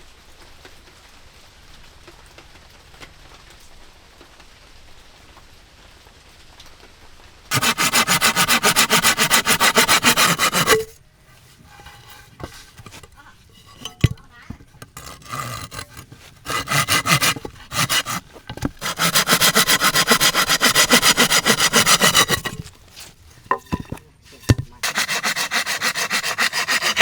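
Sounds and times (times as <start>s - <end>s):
rapid repeating rasping: 7.5s - 11.0s, 14.6s - 22.7s, 24.8s - 27.0s.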